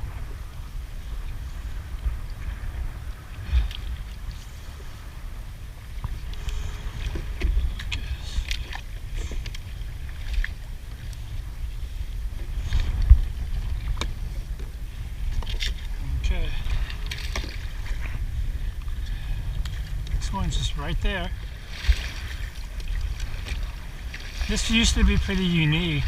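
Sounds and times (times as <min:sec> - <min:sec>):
wind rumbling on microphone: 0:00.0 - 0:26.0
paddle splashes and knocks: 0:06.0 - 0:11.5, 0:12.3 - 0:26.0.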